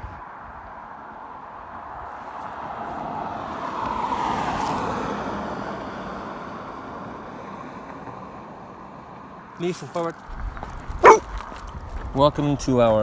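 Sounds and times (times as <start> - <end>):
vehicle passing close by: 10.0 - 12.1.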